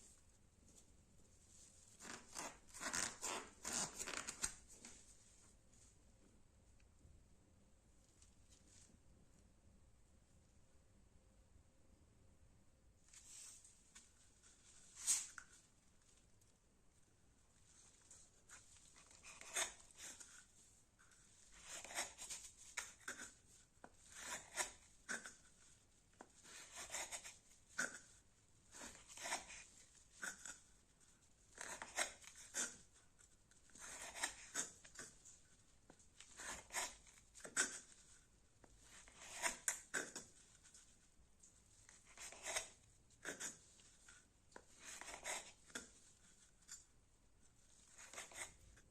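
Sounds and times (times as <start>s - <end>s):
knife scraping cuts: 2.0s - 4.6s, 15.0s - 15.4s, 18.5s - 20.5s, 21.6s - 23.4s, 24.0s - 25.6s, 26.4s - 30.7s, 31.5s - 33.0s, 33.7s - 35.3s, 36.2s - 38.2s, 38.8s - 40.9s, 41.9s - 46.8s, 47.8s - 48.8s.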